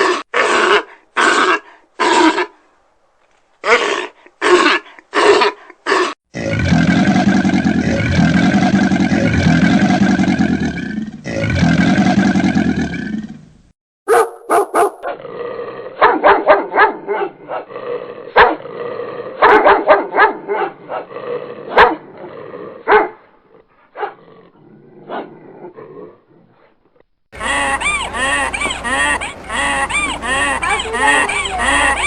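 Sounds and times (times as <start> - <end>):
dog barking: 14.1 - 15.2, 16.0 - 17.7, 18.4 - 18.6, 19.4 - 21.1, 21.7 - 22.0, 22.9 - 23.2, 24.0 - 24.2.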